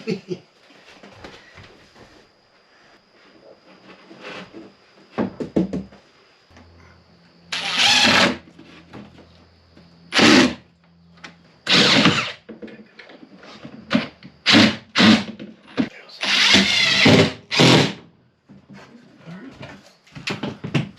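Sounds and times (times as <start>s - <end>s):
power drill bursts: 7.5s - 8.4s, 10.1s - 10.6s, 11.7s - 12.4s, 14.4s - 15.3s, 16.2s - 18.0s.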